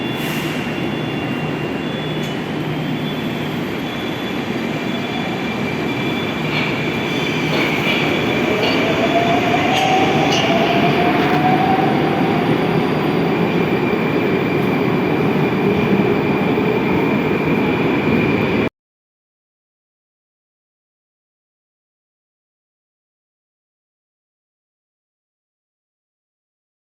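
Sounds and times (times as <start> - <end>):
metro train rumbling on rails: 0.0 - 18.7.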